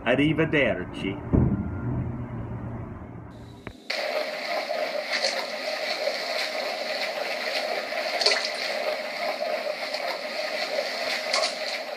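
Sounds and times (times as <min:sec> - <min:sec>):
water sloshing and splashing: 0:03.9 - 0:11.9.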